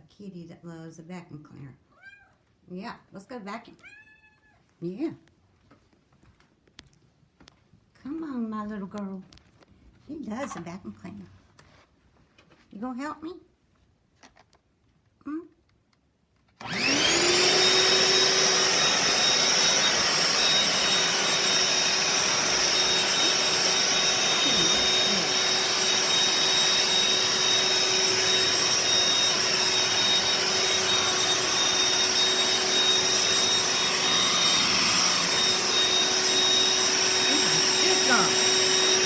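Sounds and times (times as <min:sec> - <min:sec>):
vacuum cleaner motor whining: 0:16.6 - 0:39.0.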